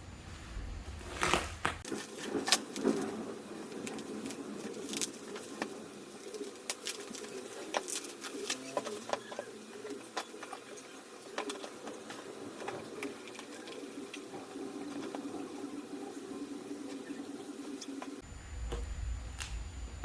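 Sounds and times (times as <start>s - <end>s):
low cooing bird calls: 2.7s - 18.2s.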